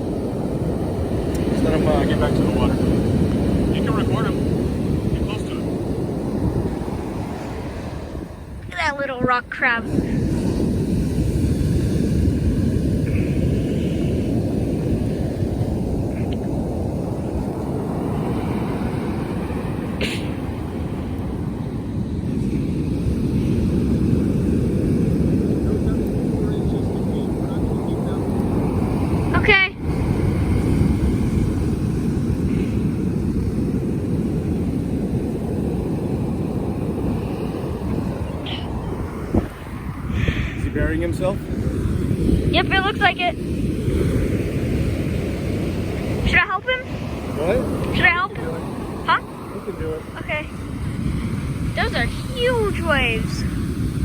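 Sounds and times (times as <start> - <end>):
ocean surf: 0.0 - 54.0
wind buffeting microphone: 0.0 - 54.0.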